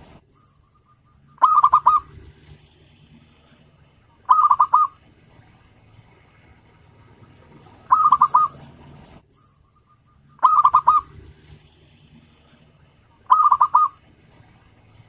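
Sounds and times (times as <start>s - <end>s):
dove cooing: 0.4s - 5.6s, 6.2s - 9.1s, 9.8s - 15.0s.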